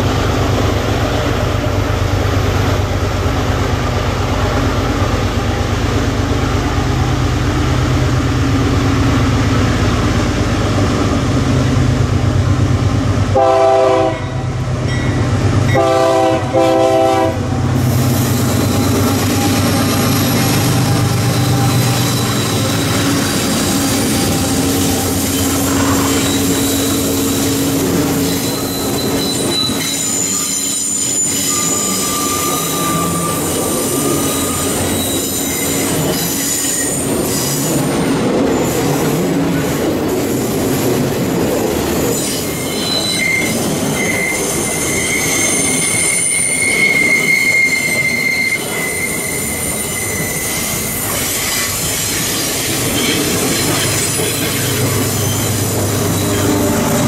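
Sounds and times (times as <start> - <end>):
diesel locomotive engines running: 0.0 - 57.0
train wheel noise: 0.0 - 57.0
train horn blasts: 13.3 - 14.6, 15.7 - 17.6
high-pitched wheel squeal: 18.1 - 37.9, 42.1 - 57.0.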